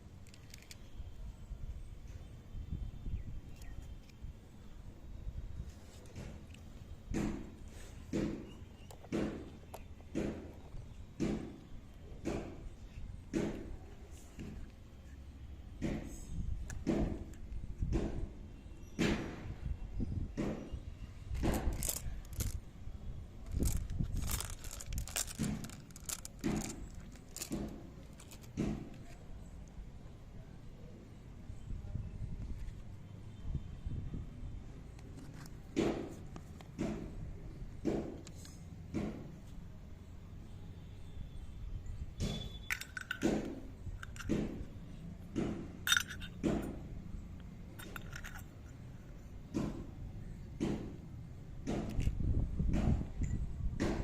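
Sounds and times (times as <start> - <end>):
packaging crinkling and tearing: 21.4 - 22.6, 23.5 - 28.6
toy pieces clicking: 21.5 - 22.6, 23.5 - 28.5.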